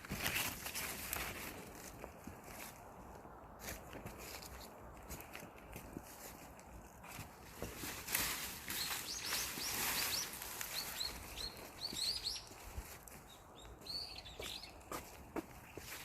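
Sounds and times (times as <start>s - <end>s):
rustling noise: 0.0s - 13.2s
small birds chirping: 8.6s - 16.0s.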